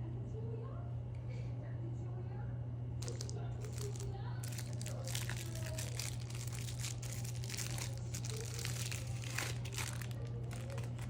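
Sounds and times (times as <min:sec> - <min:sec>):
low electrical hum: 0:00.0 - 0:11.0
candy wrapper crinkling: 0:03.0 - 0:11.0.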